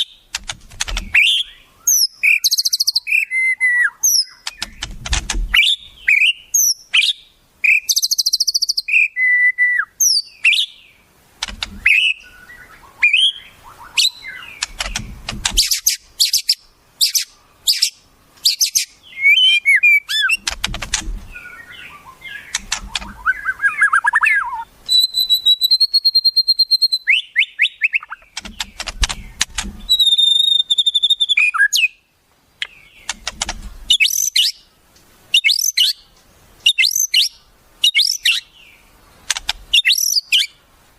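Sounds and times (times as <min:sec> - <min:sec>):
songbirds chirping and singing: 0:00.0 - 0:40.6
long held bird whistle: 0:01.1 - 0:04.7, 0:05.6 - 0:10.8, 0:11.8 - 0:14.5, 0:15.6 - 0:20.4, 0:21.4 - 0:28.2, 0:29.9 - 0:32.0, 0:33.9 - 0:34.6, 0:35.3 - 0:36.0, 0:36.6 - 0:38.5, 0:39.7 - 0:40.6.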